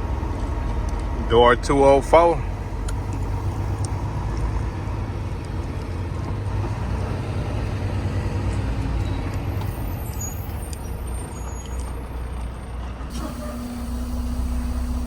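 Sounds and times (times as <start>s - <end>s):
truck diesel engine rumbling: 0.0s - 15.0s
squeaks: 9.1s - 12.4s.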